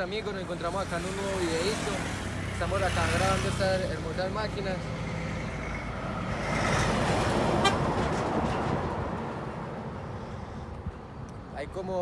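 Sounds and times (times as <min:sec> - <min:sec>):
truck passing close by: 0:00.6 - 0:10.7.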